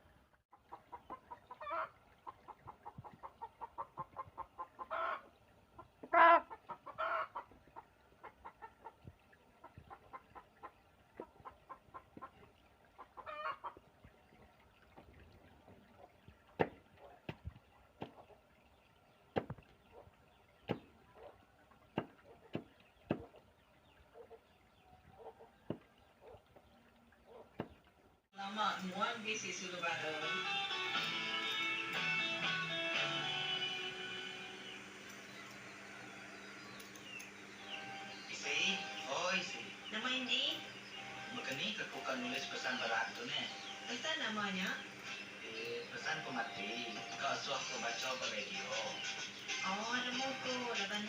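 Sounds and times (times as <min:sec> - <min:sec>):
chickens clucking: 0:00.5 - 0:14.2, 0:24.1 - 0:27.8
chickens squawking: 0:00.6 - 0:13.8, 0:25.1 - 0:26.4.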